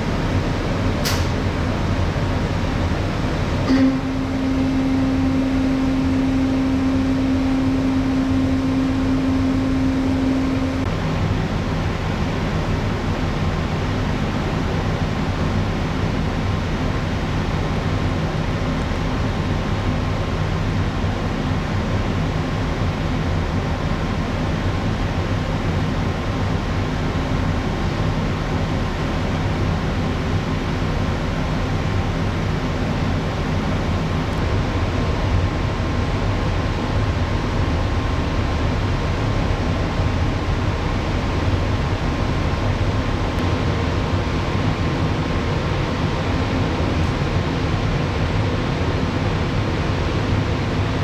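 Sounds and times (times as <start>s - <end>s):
ventilation air rush: 0.0s - 21.6s, 22.4s - 51.0s
ship machinery drone: 0.0s - 51.0s
faint steady whine: 2.4s - 11.0s.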